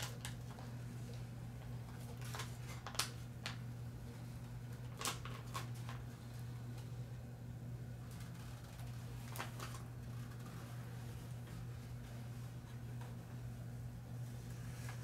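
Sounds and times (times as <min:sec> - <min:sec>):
paper crinkling and taps: 0:00.0 - 0:03.7, 0:04.6 - 0:06.1, 0:08.1 - 0:10.6
steady low hum: 0:00.0 - 0:15.0.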